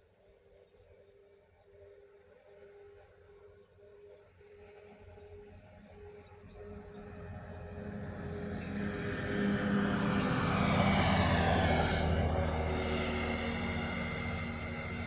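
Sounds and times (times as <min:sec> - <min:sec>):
aircraft passing over: 0:06.3 - 0:15.0.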